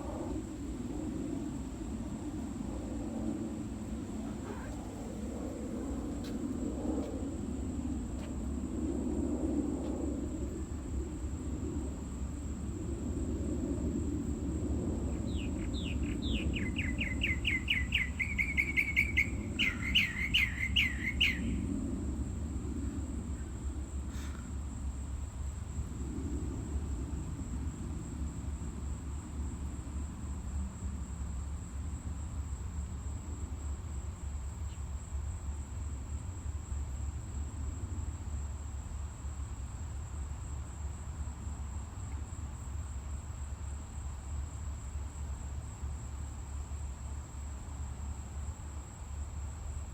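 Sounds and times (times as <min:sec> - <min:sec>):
low rumble: 0:00.0 - 0:15.2
songbird chirping: 0:03.8 - 0:06.4, 0:15.1 - 0:21.6.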